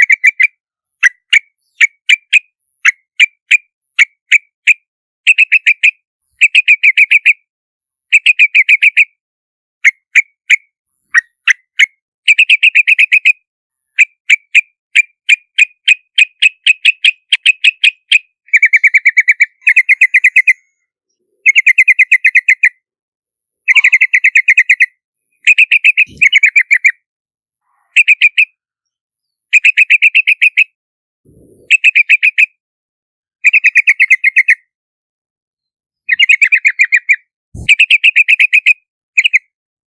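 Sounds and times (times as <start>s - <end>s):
bird chattering calls: 15.9s - 20.7s, 21.4s - 22.8s, 23.7s - 24.9s, 25.5s - 27.0s, 31.3s - 32.5s, 36.1s - 39.4s.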